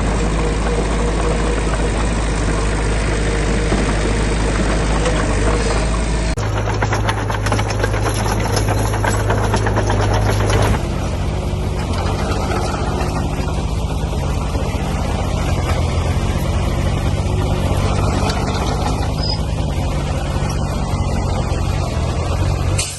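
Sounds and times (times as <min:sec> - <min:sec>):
heavy diesel engine running: 0:00.0 - 0:22.9
fast regular clatter: 0:06.3 - 0:11.1, 0:11.7 - 0:20.7.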